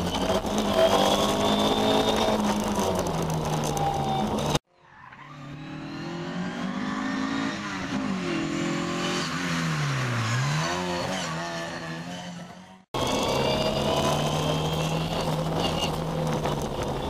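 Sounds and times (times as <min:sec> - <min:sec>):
rally car engine passing: 0:04.8 - 0:16.9.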